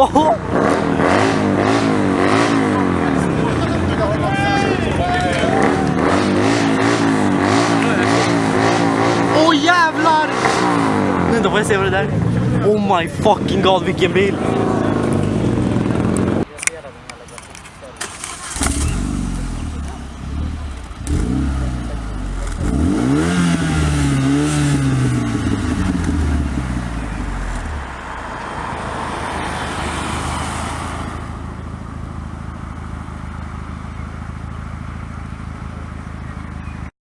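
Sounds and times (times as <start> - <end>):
car engine revving: 0.1 - 16.5, 18.0 - 36.6
steady rushing noise: 0.4 - 16.6.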